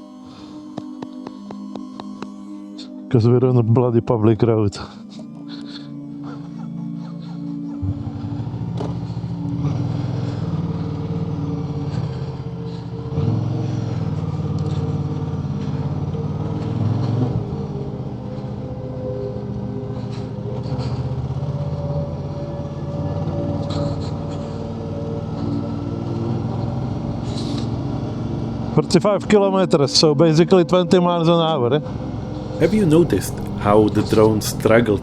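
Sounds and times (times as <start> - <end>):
motorcycle engine running: 7.8 - 28.9.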